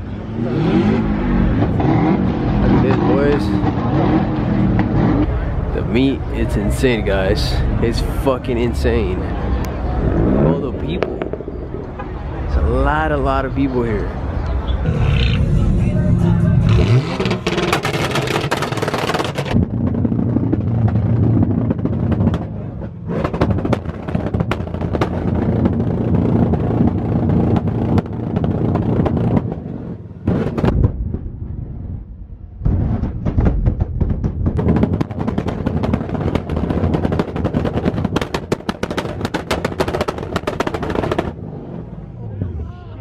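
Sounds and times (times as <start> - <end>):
car engines revving: 0.0 - 30.8, 34.6 - 43.0
exhaust pops and crackles: 0.8 - 7.2, 9.5 - 12.8, 16.8 - 31.4, 32.6 - 41.4.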